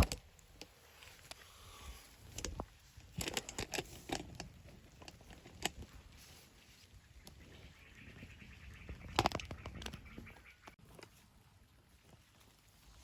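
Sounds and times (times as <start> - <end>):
small objects clicking and rustling: 2.2 - 6.5.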